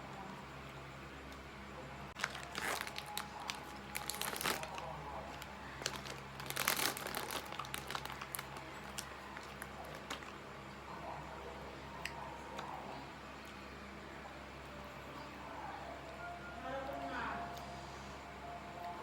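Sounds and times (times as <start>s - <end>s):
ice cream being eaten: 2.2s - 10.9s.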